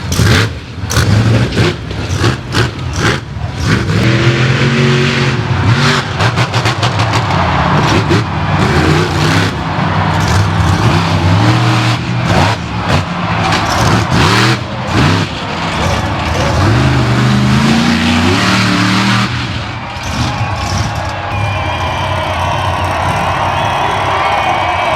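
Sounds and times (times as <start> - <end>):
truck engine revving hard: 0.0 - 24.9.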